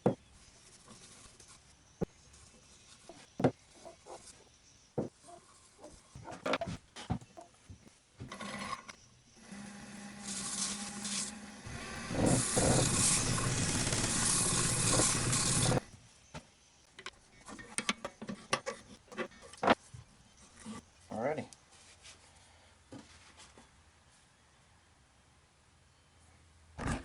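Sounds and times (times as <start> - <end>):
lathe humming: 9.4 - 15.9
sanding paste rubbing on wood: 10.3 - 15.8.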